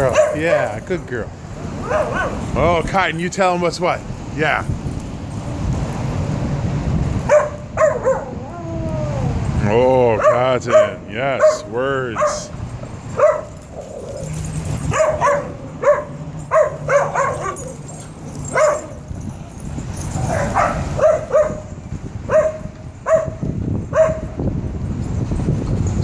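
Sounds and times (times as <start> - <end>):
dog barking and yipping: 0.0 - 0.8, 1.7 - 2.6, 7.2 - 8.5, 10.1 - 19.1, 20.0 - 24.4.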